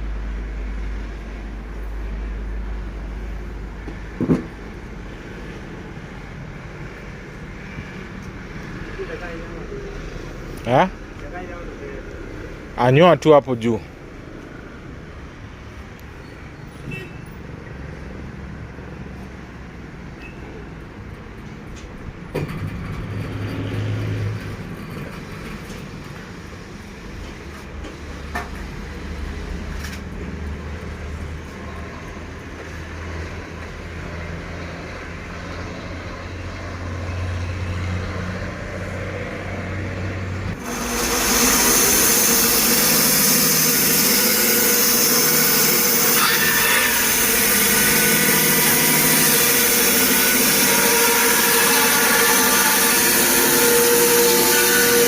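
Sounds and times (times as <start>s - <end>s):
sawmill engine running: 40.5s - 55.0s
band saw cutting log: 40.6s - 55.0s.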